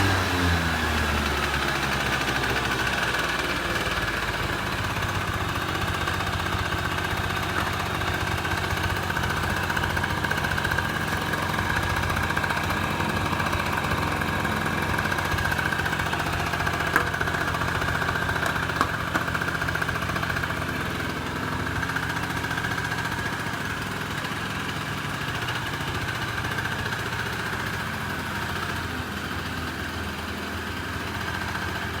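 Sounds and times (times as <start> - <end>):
scooter engine idling: 0.0 - 32.0.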